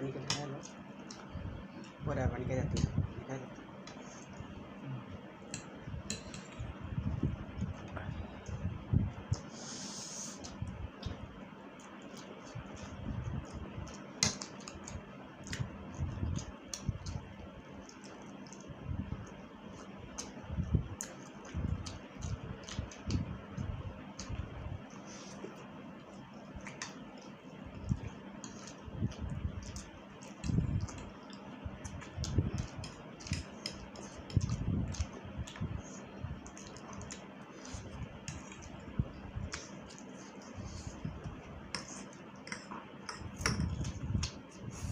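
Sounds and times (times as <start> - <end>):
noodles being chewed: 10.4 - 44.9.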